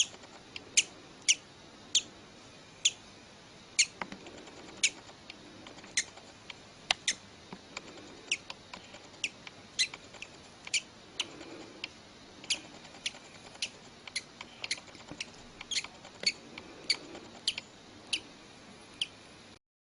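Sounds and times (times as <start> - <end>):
baby bird peeping: 0.0 - 2.1, 2.8 - 3.0, 3.8 - 5.1, 5.7 - 7.2, 7.8 - 11.8, 12.4 - 18.3, 18.9 - 19.2.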